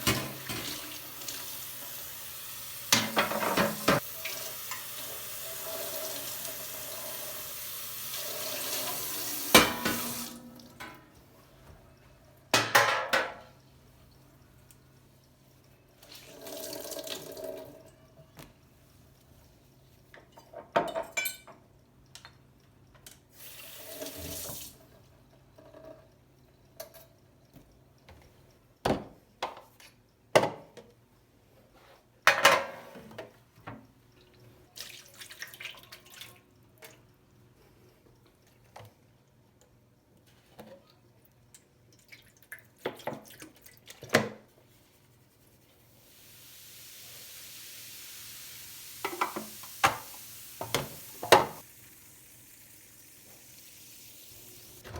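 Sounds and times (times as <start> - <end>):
kitchen tap running: 0.0 - 11.1, 16.0 - 17.8, 23.4 - 24.9, 46.0 - 54.9.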